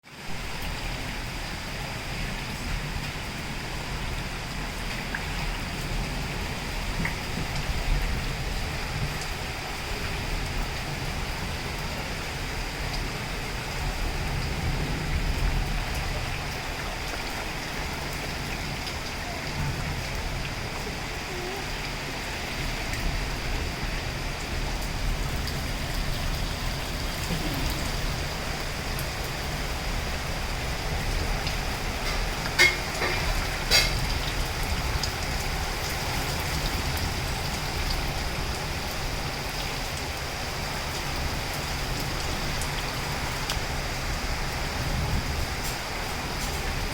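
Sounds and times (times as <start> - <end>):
heavy rain hissing: 0.0 - 46.9.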